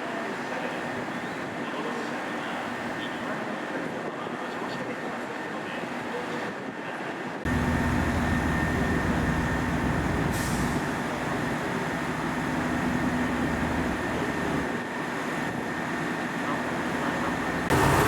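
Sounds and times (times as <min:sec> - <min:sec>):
diesel railcar engines humming: 0:07.2 - 0:18.0
air hiss: 0:10.2 - 0:11.0.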